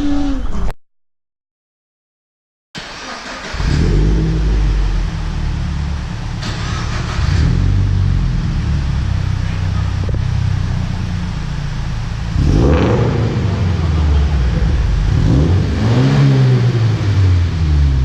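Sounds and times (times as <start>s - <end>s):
engine revving: 2.8s - 11.4s, 12.0s - 18.0s.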